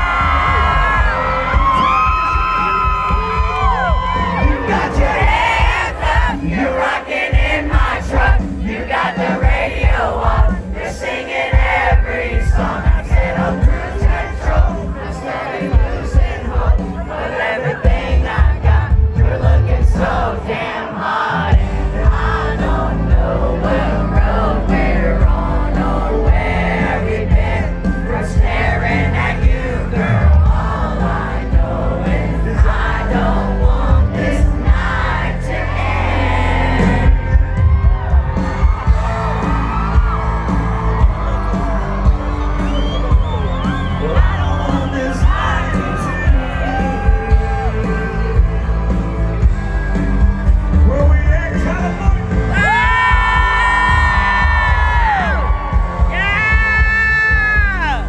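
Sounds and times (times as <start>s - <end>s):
crowd whooping and yelling: 0.0s - 6.8s, 21.3s - 58.0s
country band playing: 0.0s - 58.0s.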